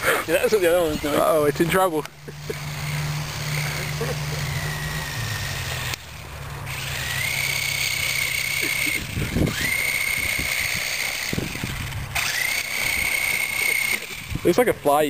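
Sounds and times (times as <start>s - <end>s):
toy helicopter motor whining: 0.0s - 15.0s.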